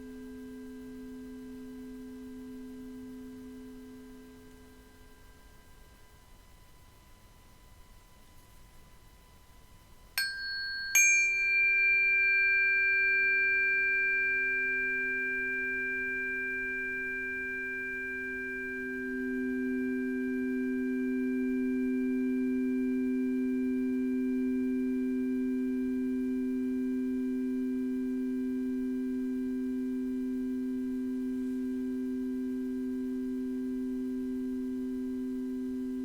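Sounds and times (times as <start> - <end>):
metal singing bowl strikes: 10.2 - 20.2.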